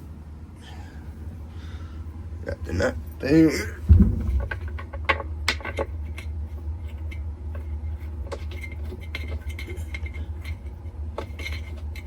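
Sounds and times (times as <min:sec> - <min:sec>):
steady low hum: 0:00.0 - 0:12.0
hands tapping metal parts: 0:03.2 - 0:06.3.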